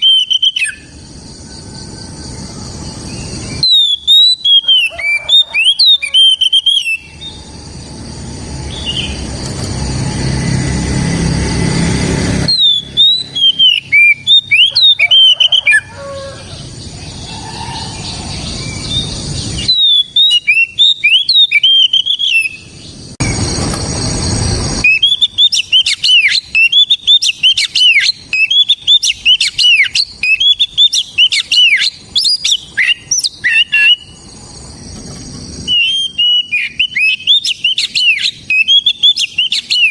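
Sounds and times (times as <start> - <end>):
magpie-robin singing: 0.0 - 1.0, 3.0 - 7.4, 12.5 - 16.0, 16.8 - 22.7, 24.8 - 34.2, 35.7 - 39.9
rushing noise: 5.2 - 19.8, 22.8 - 26.3.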